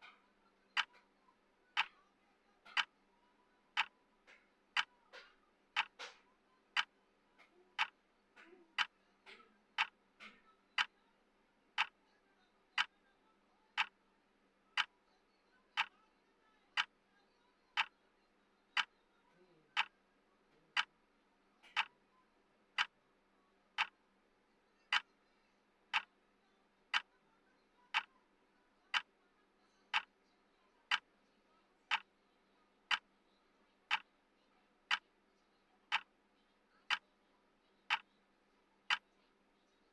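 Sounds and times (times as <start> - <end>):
clock ticking: 0.0 - 1.0, 1.8 - 2.0, 2.6 - 2.9, 3.7 - 6.2, 6.8 - 10.9, 11.8 - 12.0, 12.8 - 13.0, 13.8 - 14.0, 17.8 - 18.0, 20.7 - 20.9, 21.7 - 22.0, 22.8 - 23.0, 23.8 - 24.0, 24.9 - 25.1, 26.9 - 27.1, 27.9 - 28.2, 29.9 - 30.1, 30.9 - 31.1, 31.9 - 32.1, 32.9 - 33.1, 33.9 - 34.1, 35.9 - 36.1, 37.9 - 38.1.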